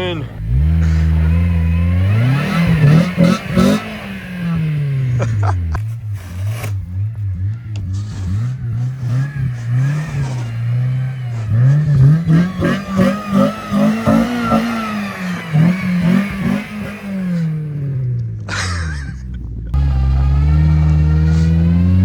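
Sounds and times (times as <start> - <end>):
engine revving: 0.0 - 22.0.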